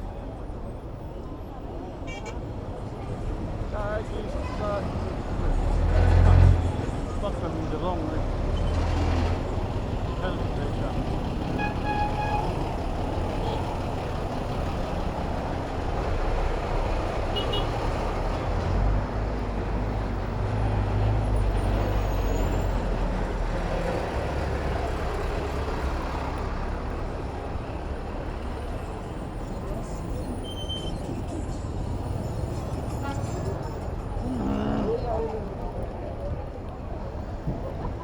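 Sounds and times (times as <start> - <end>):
large vehicle engine rumble: 0.0 - 38.0
vehicle engines and tyre noise: 0.0 - 38.0.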